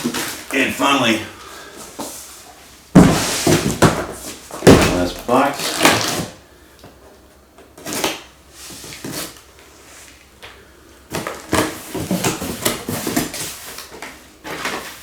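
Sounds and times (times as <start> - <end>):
cardboard box scraping and clunking: 3.0 - 5.2.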